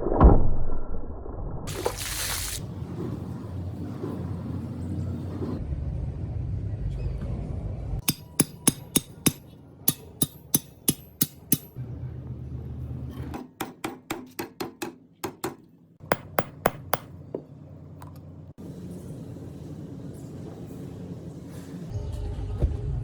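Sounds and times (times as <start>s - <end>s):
hammer striking steel on anvil: 8.0s - 11.8s, 13.6s - 17.2s.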